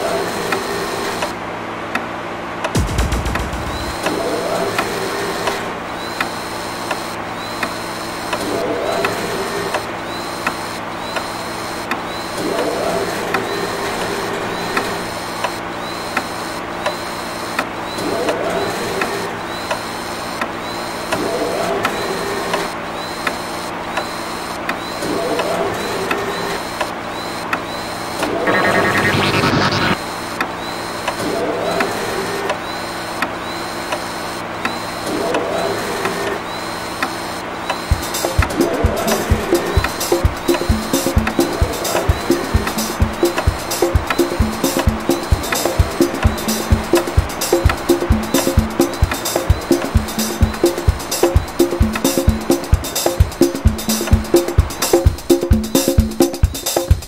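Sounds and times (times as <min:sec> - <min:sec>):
constant mechanical hum: 0:00.0 - 0:39.9.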